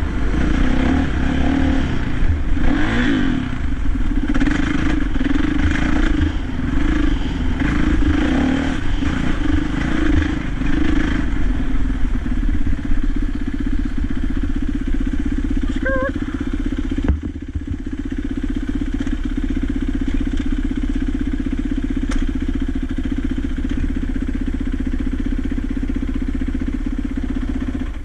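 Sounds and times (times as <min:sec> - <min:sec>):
dirt bike engine revving: 0:00.0 - 0:20.0
bike rattling over rough ground: 0:16.4 - 0:21.1.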